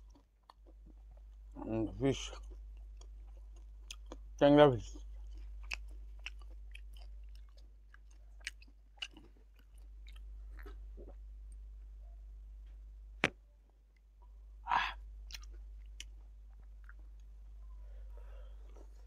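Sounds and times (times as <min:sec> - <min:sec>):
chewing and lip smacking: 0:00.0 - 0:01.6, 0:02.3 - 0:11.6, 0:15.3 - 0:17.3.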